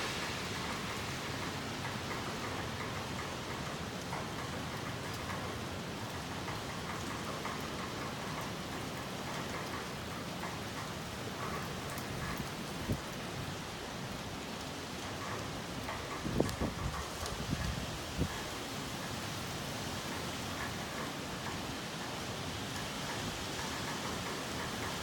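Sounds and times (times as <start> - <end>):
heavy rain hissing: 0.0 - 3.6.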